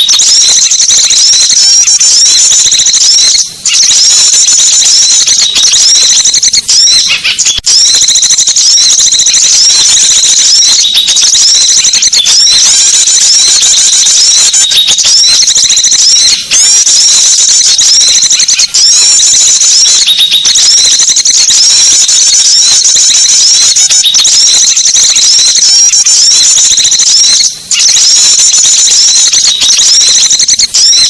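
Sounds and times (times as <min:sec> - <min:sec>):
songbirds chirping and trilling: 0:02.3 - 0:07.6, 0:09.3 - 0:15.2.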